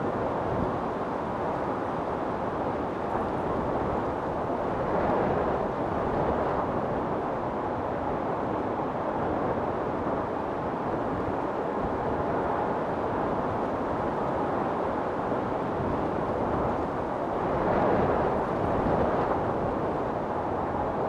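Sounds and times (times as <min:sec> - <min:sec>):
wind storm blowing: 0:09.2 - 0:21.0.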